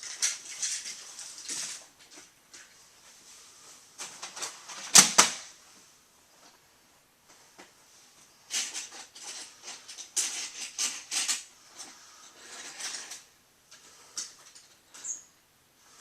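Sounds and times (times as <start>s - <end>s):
scratchy rustling and scraping: 0.0s - 4.6s, 8.5s - 15.2s.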